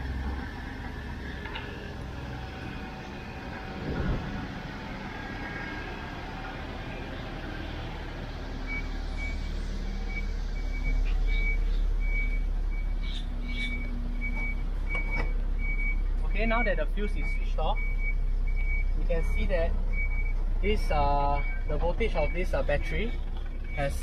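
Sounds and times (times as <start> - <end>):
car engine idling: 6.0 - 24.0.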